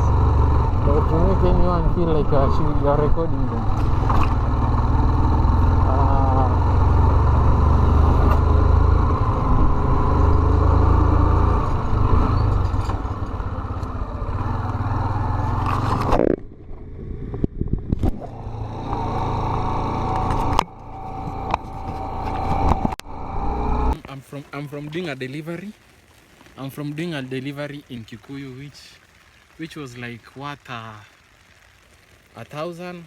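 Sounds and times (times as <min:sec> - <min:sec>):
motorcycle engine rumble: 0:00.0 - 0:24.0.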